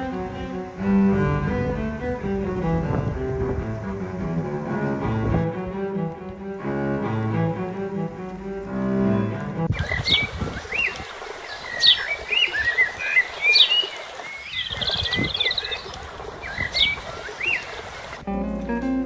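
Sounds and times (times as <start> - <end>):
music: 0.0 - 10.3, 18.2 - 19.0
steady outdoor hiss: 0.0 - 18.8
songbirds singing and calling: 9.7 - 18.2.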